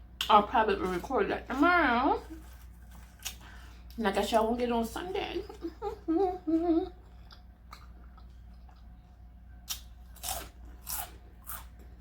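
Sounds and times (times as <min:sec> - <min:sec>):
crunchy taco chewing: 0:02.2 - 0:04.0, 0:06.9 - 0:12.0.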